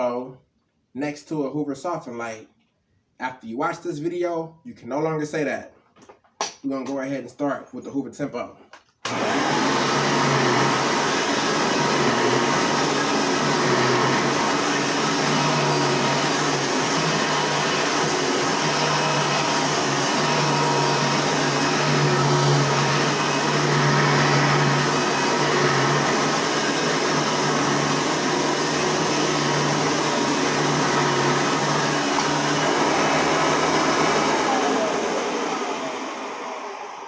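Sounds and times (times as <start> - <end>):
upright vacuum cleaner running: 9.0 - 37.0.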